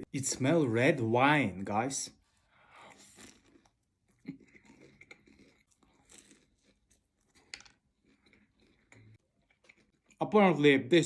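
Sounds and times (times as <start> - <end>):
chewing crunchy fried chicken: 2.2 - 10.3.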